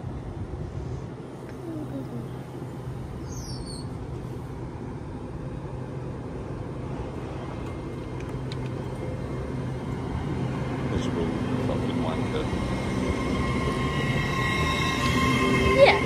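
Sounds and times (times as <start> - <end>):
train traction hum: 0.0 - 16.0.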